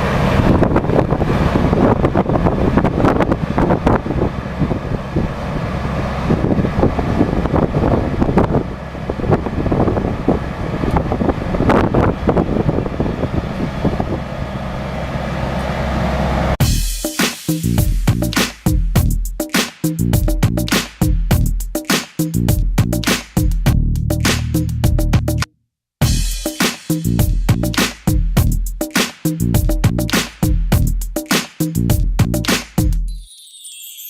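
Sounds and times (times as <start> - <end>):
heavy machine engine running: 0.0 - 16.8.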